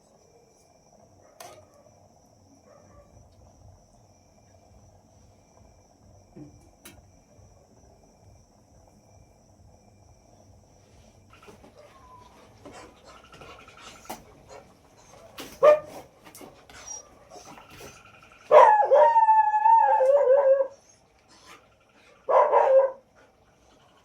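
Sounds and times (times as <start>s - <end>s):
dog whining and howling: 11.7s - 16.0s, 16.7s - 23.3s
dog yelping: 11.8s - 16.0s, 16.8s - 21.6s, 22.3s - 23.0s.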